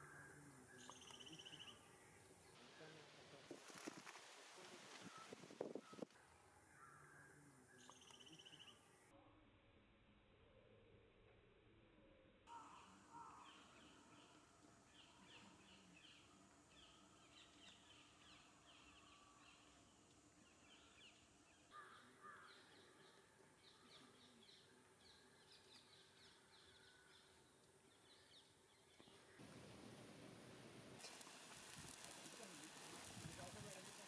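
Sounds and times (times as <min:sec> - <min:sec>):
bird calls: 0:00.0 - 0:03.0, 0:04.6 - 0:09.0
faint bird chirps: 0:00.0 - 0:04.0, 0:04.6 - 0:09.5, 0:12.0 - 0:29.5.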